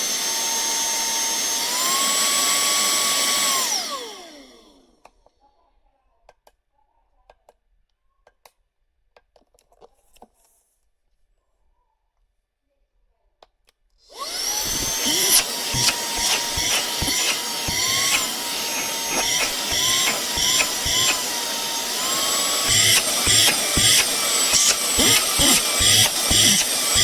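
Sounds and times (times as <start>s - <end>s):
handheld vacuum cleaner whine: 0.0s - 4.8s, 14.1s - 27.0s.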